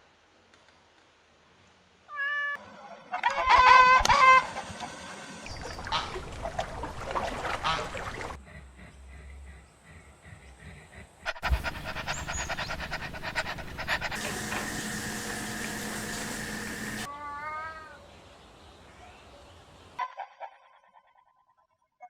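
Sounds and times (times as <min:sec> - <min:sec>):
cat meowing: 0:02.1 - 0:02.6.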